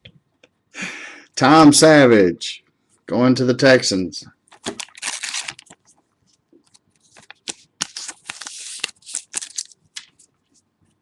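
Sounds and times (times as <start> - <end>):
trading cards clicking and swishing: 6.6 - 10.2.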